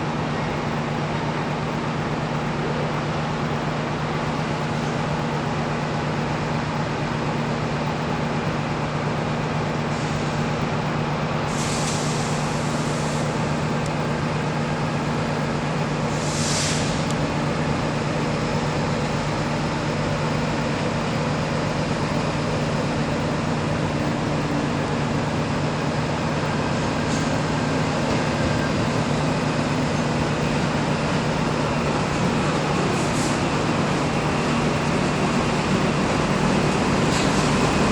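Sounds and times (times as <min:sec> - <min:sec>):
locomotive engine drone: 0:00.0 - 0:37.9
short bursts of hissing: 0:11.5 - 0:13.4, 0:16.1 - 0:17.1.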